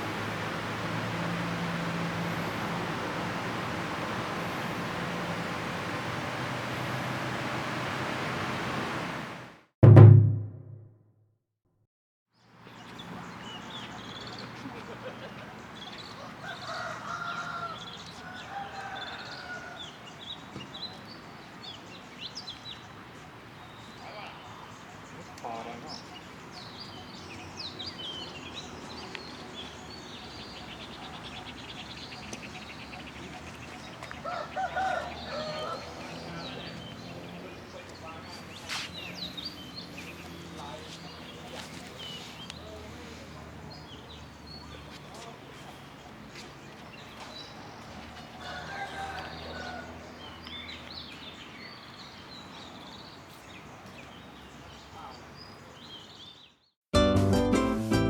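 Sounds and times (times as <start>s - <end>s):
birds chirping: 12.4s - 56.8s
rooster crowing: 16.2s - 20.1s, 34.0s - 36.7s, 48.2s - 50.4s.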